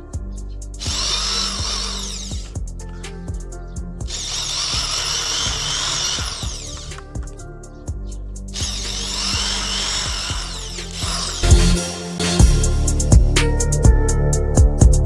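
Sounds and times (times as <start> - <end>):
background music with beat: 0.0 - 0.9, 2.4 - 4.1, 6.9 - 9.2, 10.9 - 15.0
electric drill running: 0.8 - 2.6, 4.1 - 7.4, 8.6 - 11.8.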